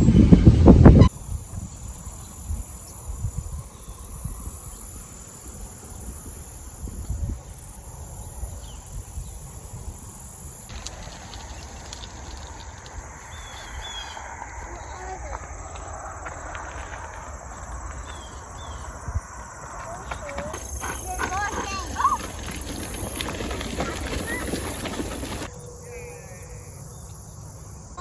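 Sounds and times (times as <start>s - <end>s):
insects trilling: 1.1s - 28.0s.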